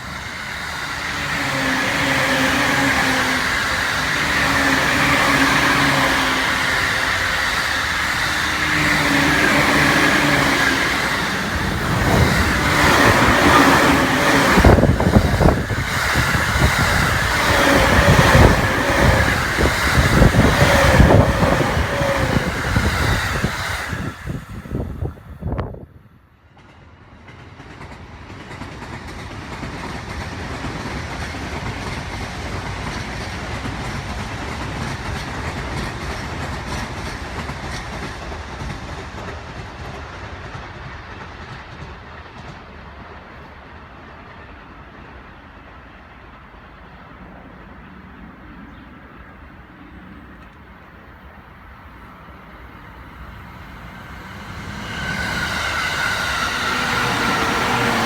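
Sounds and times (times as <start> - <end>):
wheels clacking over rail joints: 0.0 - 25.1, 47.3 - 58.0
electric train passing: 0.0 - 58.0.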